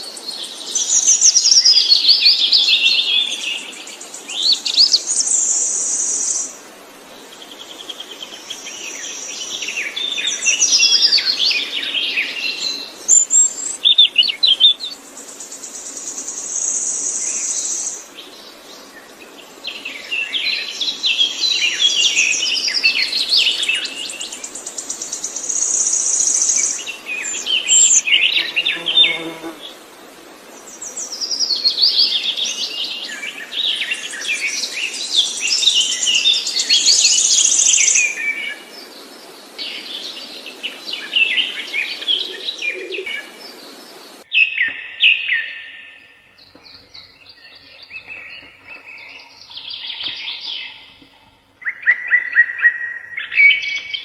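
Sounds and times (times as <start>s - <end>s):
songbird trilling and chirping: 44.3s - 54.0s.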